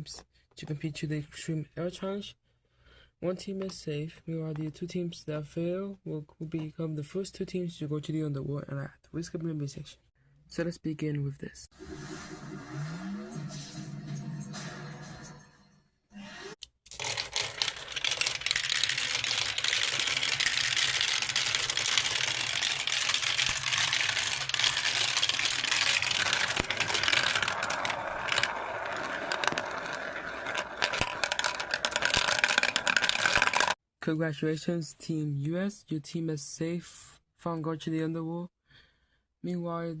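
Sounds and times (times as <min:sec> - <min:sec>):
small hard objects clattering: 0:16.9 - 0:33.8
scraping: 0:17.5 - 0:33.8.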